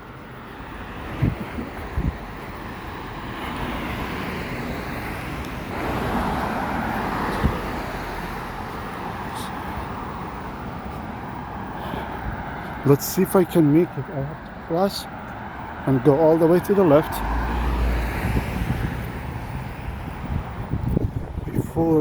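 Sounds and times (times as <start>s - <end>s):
road traffic passing: 0.0s - 22.0s
vehicle passing: 0.0s - 22.0s.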